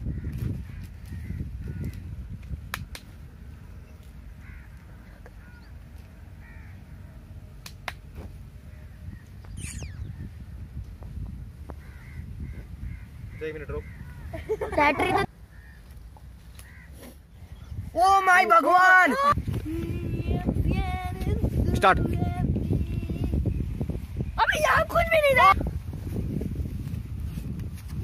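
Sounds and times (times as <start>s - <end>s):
short bird calls: 8.7s - 10.4s.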